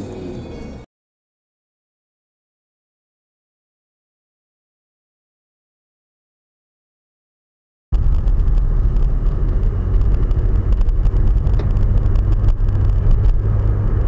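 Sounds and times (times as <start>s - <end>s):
car engine and road noise: 0.0s - 0.9s, 8.0s - 14.0s.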